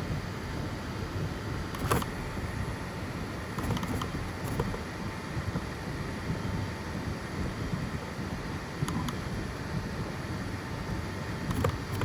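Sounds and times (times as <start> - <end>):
three-d printer whirring: 1.7 - 4.9, 11.4 - 12.0.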